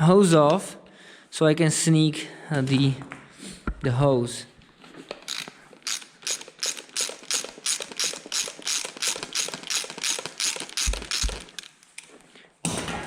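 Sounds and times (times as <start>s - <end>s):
ratchet wrench clicking: 5.2s - 11.8s.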